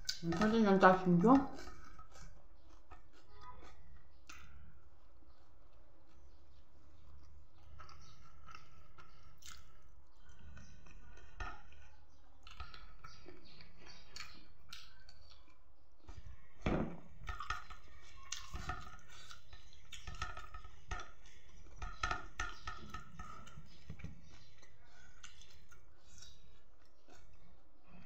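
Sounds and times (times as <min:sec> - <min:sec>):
person chewing with mouth clicks: 0:00.0 - 0:00.3, 0:01.5 - 0:15.7, 0:18.2 - 0:21.8, 0:23.3 - 0:27.6.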